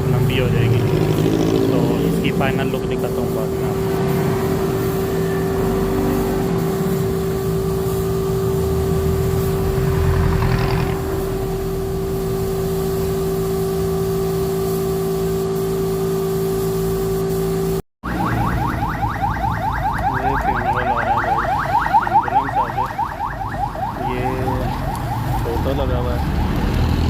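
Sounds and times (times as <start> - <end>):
motor humming: 0.0 - 17.8.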